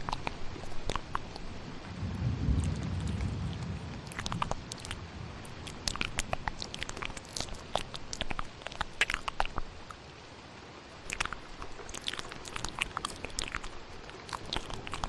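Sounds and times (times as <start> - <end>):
wet mouth clicks and smacks: 0.0 - 1.6, 4.0 - 10.0, 11.0 - 15.0
rain hissing: 0.0 - 9.0
low thunder rumble: 1.8 - 7.1.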